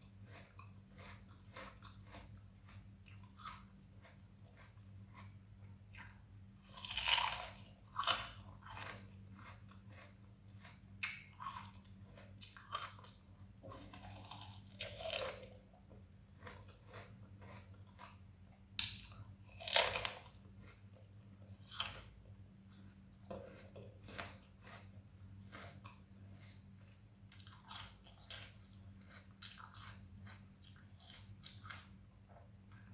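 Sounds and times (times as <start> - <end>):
chewing crunches: 0.0 - 32.9
crisp fruit bites crunching: 0.3 - 5.3, 5.9 - 15.7, 16.4 - 18.2, 18.8 - 20.8.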